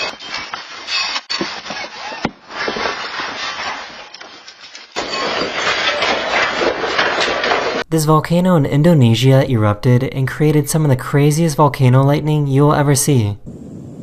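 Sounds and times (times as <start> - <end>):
building and contents rattling: 0.0 - 9.1.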